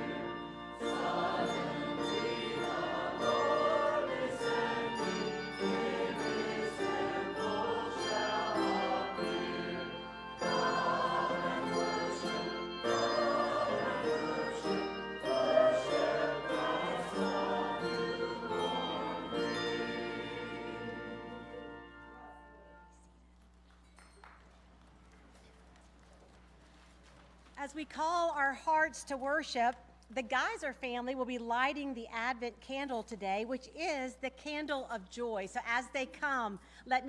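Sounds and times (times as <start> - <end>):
church choir singing: 0.0 - 23.0
instrumental accompaniment: 0.0 - 23.0.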